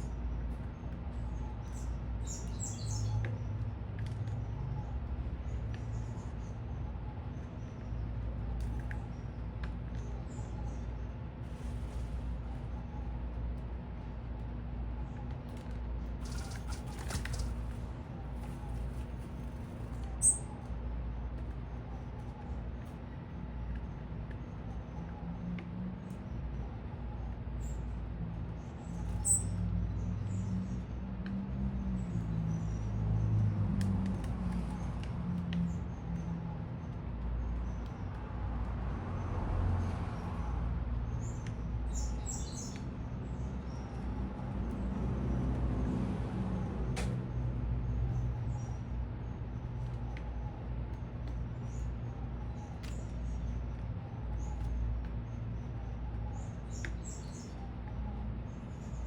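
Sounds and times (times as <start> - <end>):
small birds chirping: 0.0 - 38.8, 39.8 - 44.8, 47.1 - 59.0
city traffic rumble: 0.0 - 59.0.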